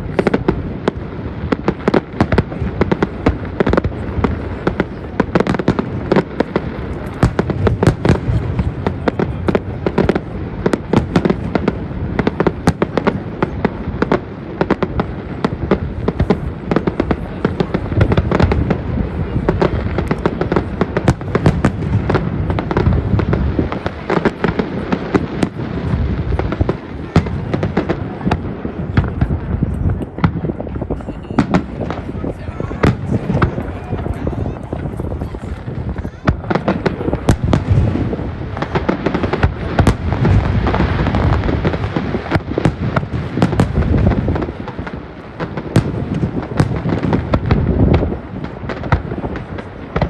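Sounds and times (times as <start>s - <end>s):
fireworks bangs: 0.0s - 50.0s.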